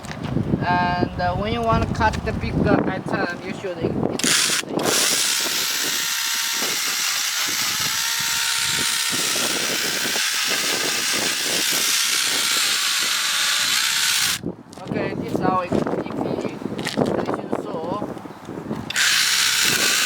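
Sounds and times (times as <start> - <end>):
cordless chainsaw cutting wood: 4.2 - 14.4, 18.9 - 20.0.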